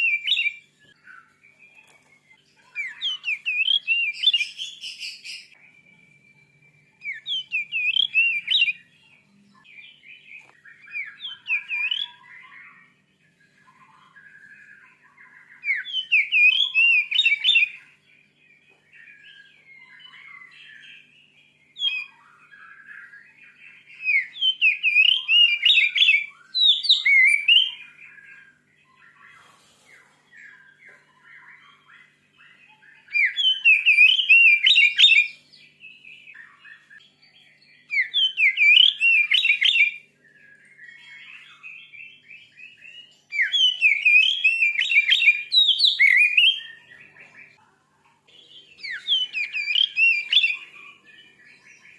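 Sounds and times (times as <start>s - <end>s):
bird singing whistled notes: 0.0s - 29.5s, 30.3s - 47.6s, 48.3s - 51.9s.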